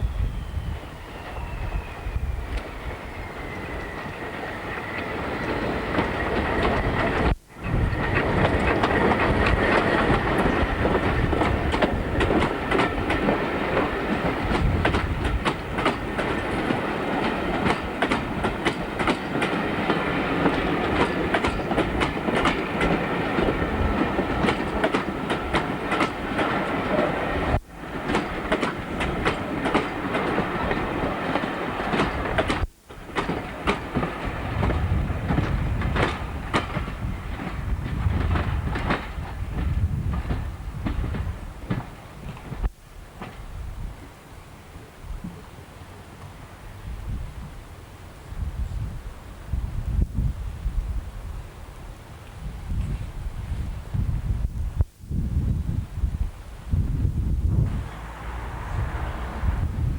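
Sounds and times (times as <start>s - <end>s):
train wheels clicking over rail joints: 2.4s - 44.0s.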